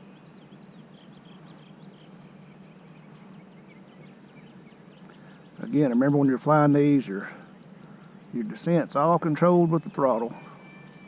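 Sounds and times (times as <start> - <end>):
faint bird chirps: 0.0 - 8.6, 9.2 - 11.0
steady low hum: 0.0 - 11.0.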